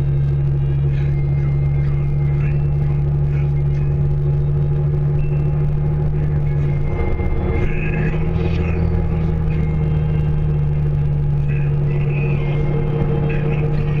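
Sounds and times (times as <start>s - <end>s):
vehicle engine hum and rumble: 0.0s - 14.0s.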